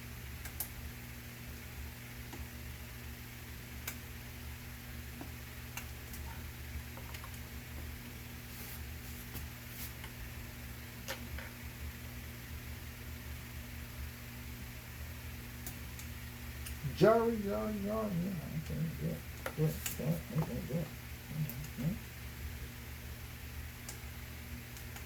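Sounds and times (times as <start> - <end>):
steady low hum: 0.7 - 25.0.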